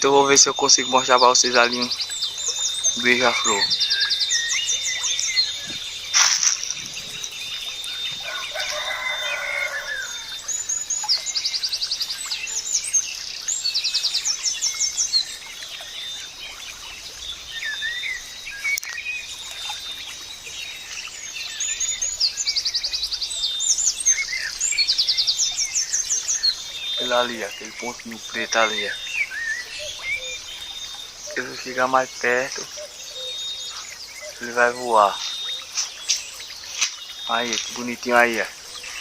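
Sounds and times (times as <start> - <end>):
birds singing and calling: 0.0 - 39.0.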